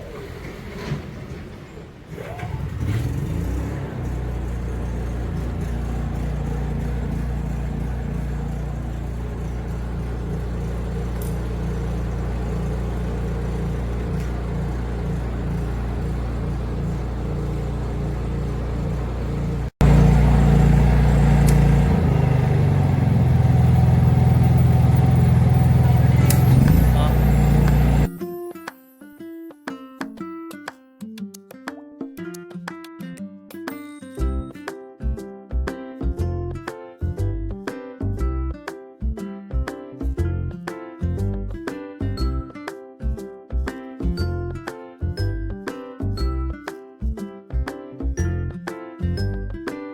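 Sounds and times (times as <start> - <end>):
generator engine running: 2.3 - 28.1.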